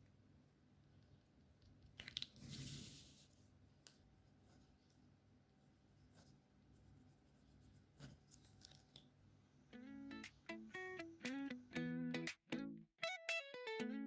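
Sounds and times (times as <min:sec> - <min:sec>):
marker scratching on paper: 0:06.0 - 0:08.4.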